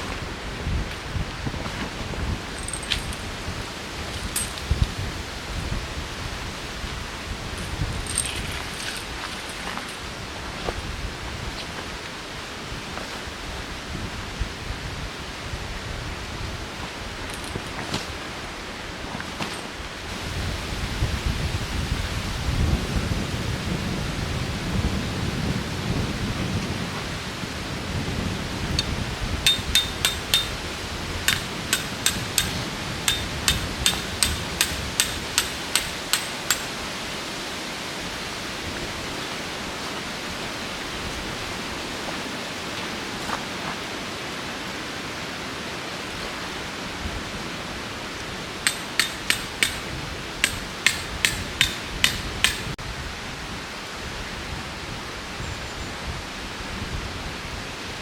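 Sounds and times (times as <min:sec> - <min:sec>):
strong wind rushing: 0:20.1 - 0:36.1
metallic hammer strikes: 0:29.5 - 0:30.7, 0:31.3 - 0:36.9, 0:48.7 - 0:52.8.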